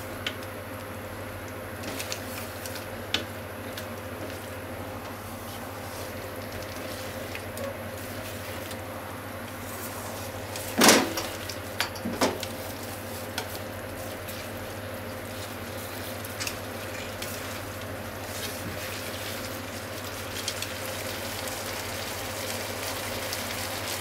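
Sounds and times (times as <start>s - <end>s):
food sizzling in a frying pan: 10.6s - 24.0s.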